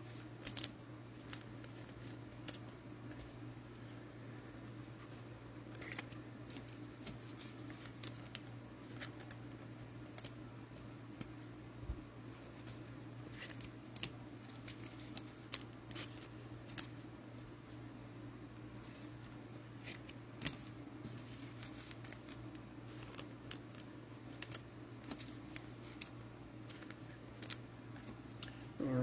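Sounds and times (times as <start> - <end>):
steady low hum: 0.0 - 29.0
cards clicking and tapping: 19.8 - 28.4.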